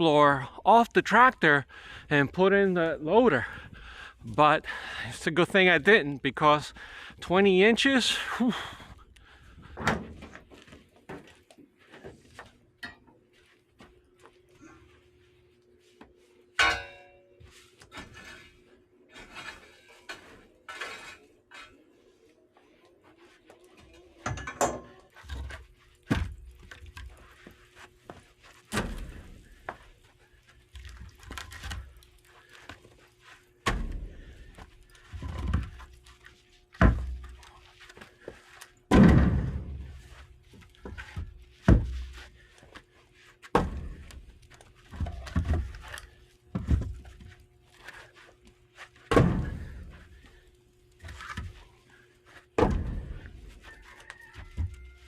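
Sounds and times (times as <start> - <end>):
irregular thuds and knocks: 33.6 - 35.9, 36.7 - 37.4, 38.9 - 40.2, 40.8 - 42.2, 43.5 - 45.9, 49.0 - 50.3, 52.5 - 53.6.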